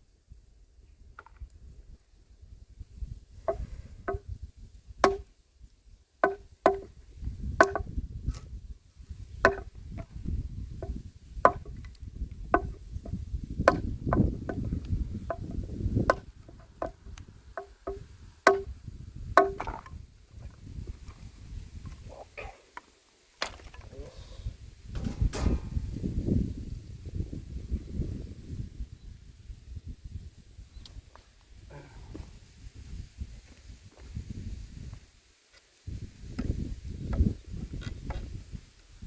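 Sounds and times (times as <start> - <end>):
axe chopping wood: 3.4 - 4.3, 5.0 - 5.3, 6.2 - 7.0, 7.6 - 8.5, 9.4 - 10.1, 10.8 - 11.8, 12.6 - 17.0, 17.6 - 18.7, 19.4 - 19.8.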